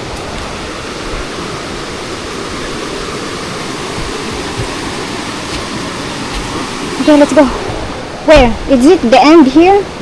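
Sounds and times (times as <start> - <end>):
rushing falling water: 0.0 - 10.0.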